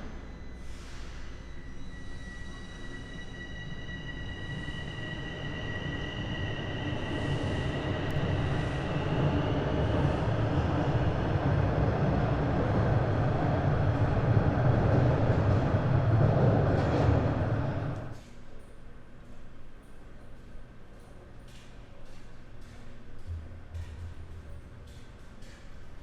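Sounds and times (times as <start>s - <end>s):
subway train rumble: 0.0s - 18.3s, 20.6s - 26.0s.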